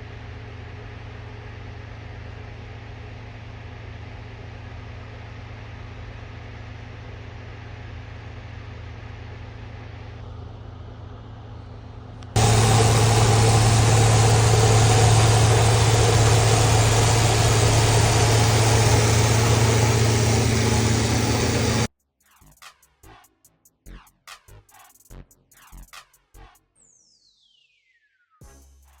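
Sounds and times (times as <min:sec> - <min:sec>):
loud close-up engine: 0:12.4 - 0:21.9
rushing noise: 0:12.4 - 0:21.9
snow removal engine humming: 0:12.4 - 0:21.9.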